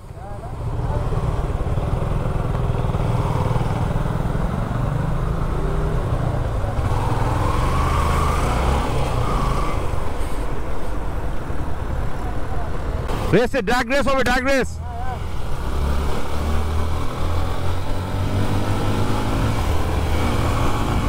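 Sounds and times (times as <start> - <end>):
motorcycle engine rumble: 0.0 - 13.4
distant traffic: 0.0 - 21.0.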